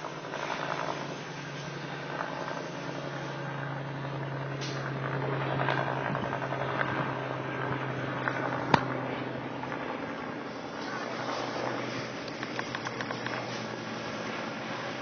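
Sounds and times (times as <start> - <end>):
low engine hum: 0.0 - 15.0
fire crackling and popping: 10.5 - 15.0.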